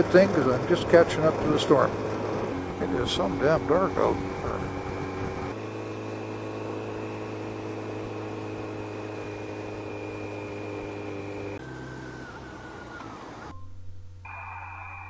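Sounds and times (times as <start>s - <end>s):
motorcycle engine whine: 0.0s - 15.0s
rushing wind noise: 1.8s - 5.6s.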